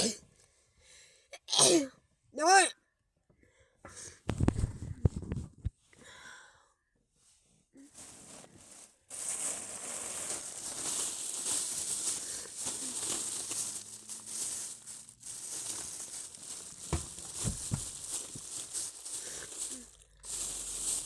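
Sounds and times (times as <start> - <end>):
material rustling and crinkling: 7.8 - 21.0
low thumps: 16.9 - 18.5.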